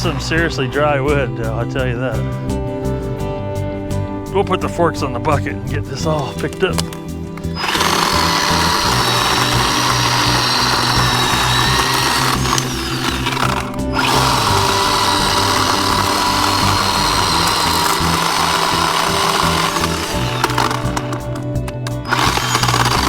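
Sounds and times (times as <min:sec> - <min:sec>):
electric chainsaw cutting wood: 0:06.8 - 0:23.0.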